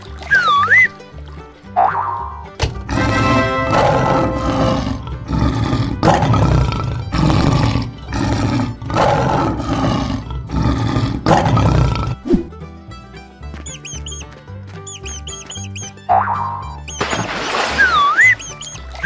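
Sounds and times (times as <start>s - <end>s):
lion roaring: 2.9s - 12.3s.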